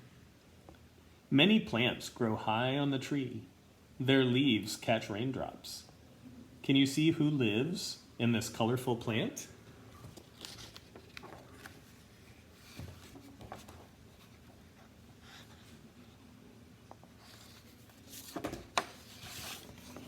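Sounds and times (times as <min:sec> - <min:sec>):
paper book pages rustling: 0:10.0 - 0:15.8, 0:16.9 - 0:20.0.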